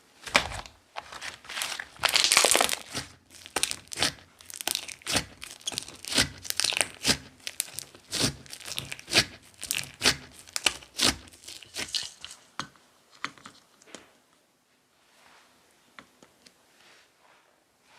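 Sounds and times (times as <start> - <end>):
slime crackling and popping: 1.4 - 12.5.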